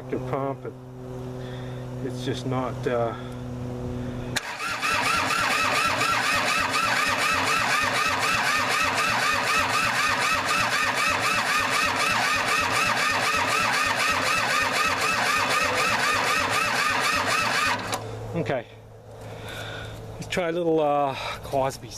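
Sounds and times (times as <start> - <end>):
starter motor cranking diesel engine: 4.4 - 18.1.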